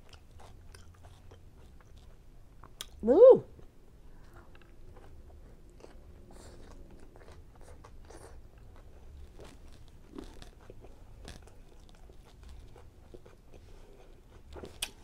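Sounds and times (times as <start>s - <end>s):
person chewing food: 0.0s - 3.0s, 3.6s - 15.0s.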